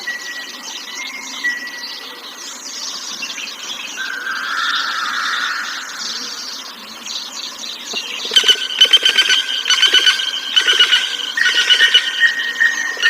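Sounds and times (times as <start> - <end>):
bird calling shrilly: 8.0 - 13.0.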